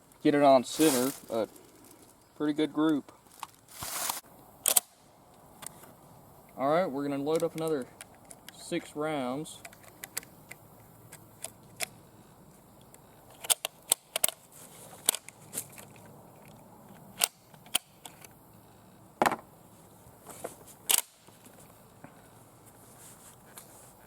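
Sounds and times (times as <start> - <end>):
rifle cartridges clicking: 4.6 - 5.0, 13.3 - 14.4, 20.9 - 21.3.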